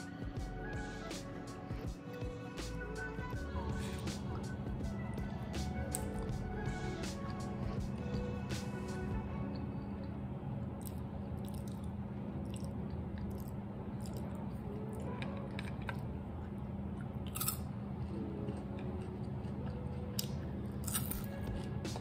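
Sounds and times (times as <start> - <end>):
chewing crunchy food: 10.8 - 22.0.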